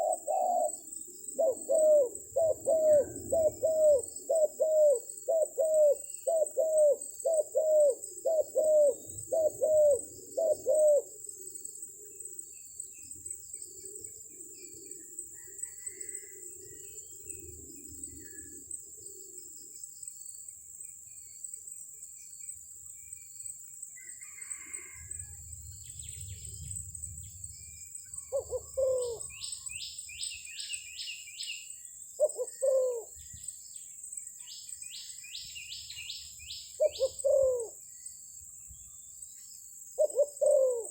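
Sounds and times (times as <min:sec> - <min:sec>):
doves cooing: 0:00.0 - 0:12.3, 0:28.2 - 0:29.7, 0:32.2 - 0:33.3, 0:36.8 - 0:37.8, 0:40.0 - 0:40.9
insect drone: 0:00.0 - 0:40.9.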